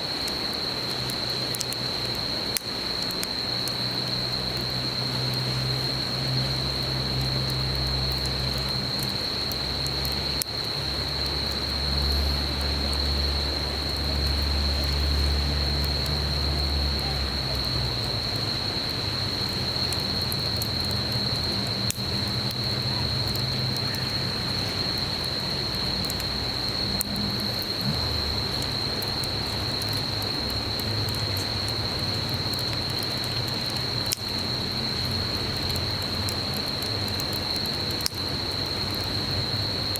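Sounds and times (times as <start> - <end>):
campfire crackling: 0.0 - 39.9
insects droning: 0.0 - 39.9
stream flowing: 0.0 - 39.9.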